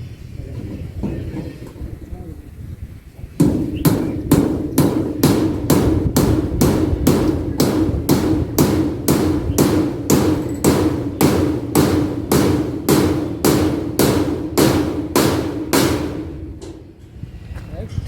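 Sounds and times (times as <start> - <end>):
hammer nailing tin roofing sheets: 3.4 - 17.0.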